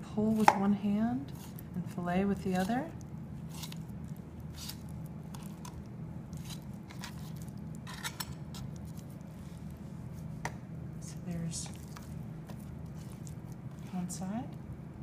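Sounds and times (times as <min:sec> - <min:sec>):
steady low hum: 0:00.0 - 0:15.0
knife scraping along bone: 0:01.3 - 0:01.7, 0:03.4 - 0:03.8, 0:04.5 - 0:09.1
wet squishes: 0:11.7 - 0:13.9.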